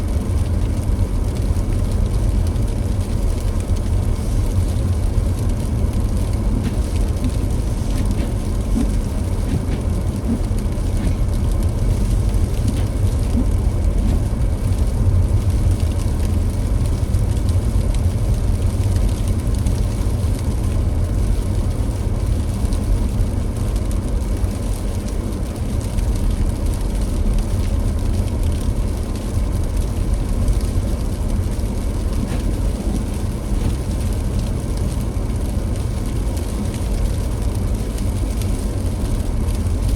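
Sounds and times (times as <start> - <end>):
car driving on snowy road: 0.0 - 39.9.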